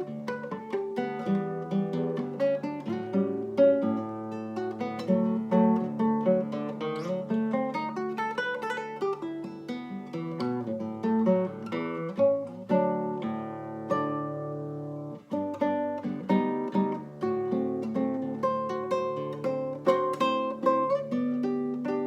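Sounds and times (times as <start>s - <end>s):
fingerstyle acoustic guitar: 0.0s - 22.0s.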